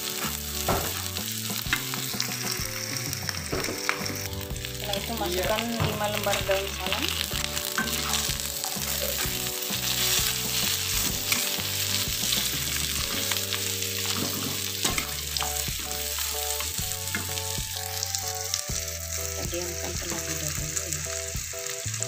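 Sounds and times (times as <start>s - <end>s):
food sizzling in oil: 0.0s - 22.0s
soft background music: 0.0s - 22.0s
metal spoon scraping a pan: 7.1s - 17.4s.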